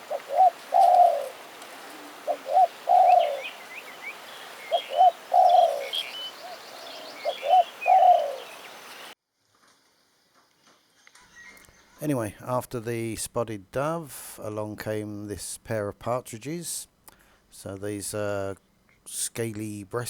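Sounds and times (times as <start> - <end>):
dove cooing: 0.0 - 8.8
small birds chirping: 0.0 - 9.2.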